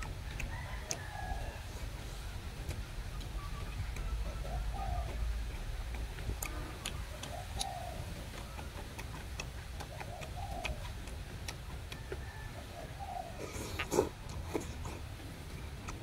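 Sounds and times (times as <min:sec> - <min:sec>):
mouth clicks and smacks: 0:00.0 - 0:01.1, 0:02.6 - 0:12.2, 0:13.3 - 0:16.0
bird cooing: 0:00.0 - 0:05.6, 0:06.5 - 0:09.0, 0:09.8 - 0:11.1, 0:12.0 - 0:14.8
wet chewing: 0:00.0 - 0:16.0.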